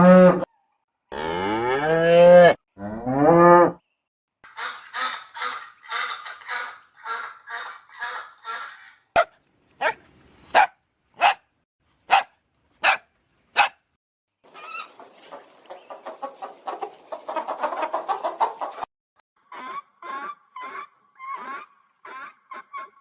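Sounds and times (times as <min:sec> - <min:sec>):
chicken clucking: 0:04.5 - 0:09.0, 0:14.5 - 0:23.0
dog barking: 0:09.2 - 0:11.5, 0:12.1 - 0:13.8.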